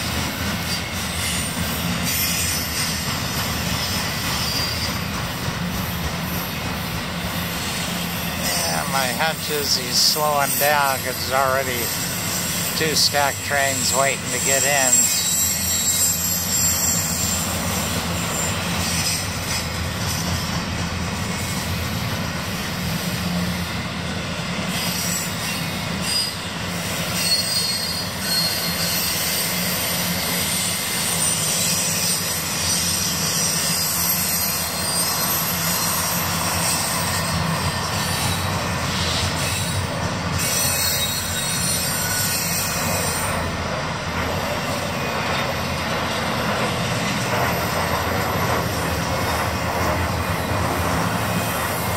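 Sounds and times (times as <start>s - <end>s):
high steel wheel squeal: 0.0s - 22.0s, 24.7s - 51.9s
freight wheels rumbling on rail: 0.0s - 51.9s.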